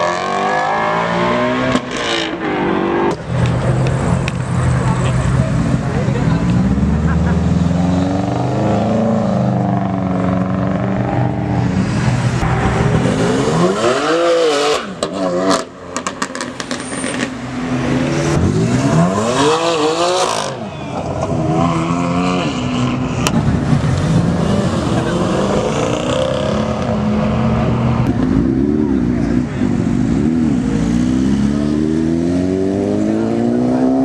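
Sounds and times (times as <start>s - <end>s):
car engine revving hard: 12.1s - 20.6s, 21.2s - 34.0s.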